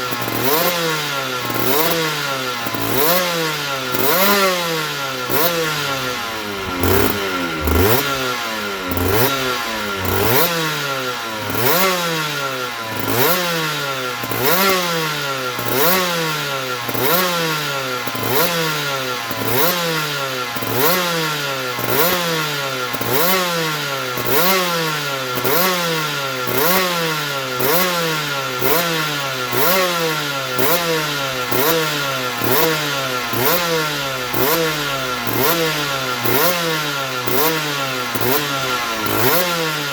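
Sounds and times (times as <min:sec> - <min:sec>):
motorcycle engine revving: 0:00.4 - 0:39.9.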